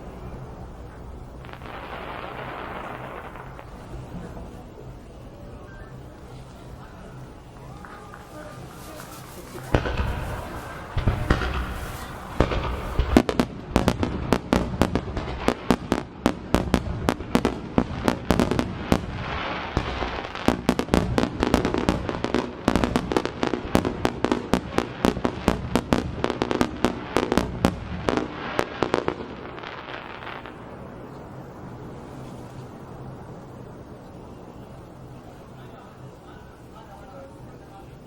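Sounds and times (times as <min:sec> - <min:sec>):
fireworks crackling: 0:00.0 - 0:38.0
fireworks shell bursts: 0:07.8 - 0:13.3.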